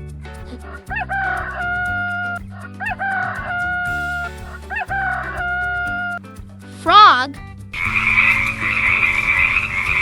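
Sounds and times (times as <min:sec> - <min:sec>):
light background music: 0:00.0 - 0:10.0
rooster crowing: 0:00.9 - 0:06.1, 0:07.8 - 0:10.0.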